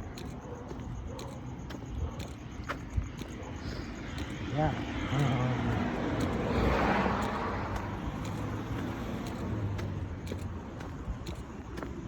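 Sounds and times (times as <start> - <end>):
road vehicle passing by: 4.5 - 11.4.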